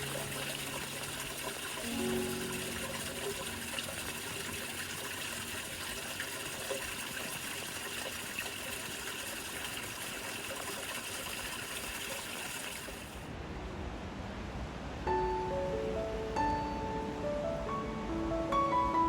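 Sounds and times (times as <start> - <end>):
steady rain: 0.0 - 9.6.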